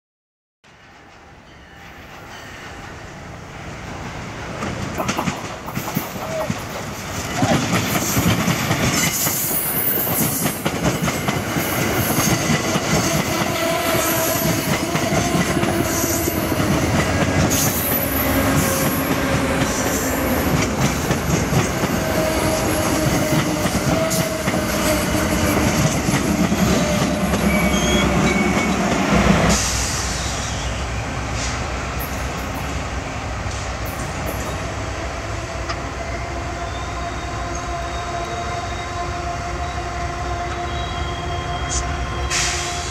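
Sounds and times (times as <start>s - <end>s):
train wheels squealing and clicking: 4.7s - 32.8s, 40.6s - 42.9s.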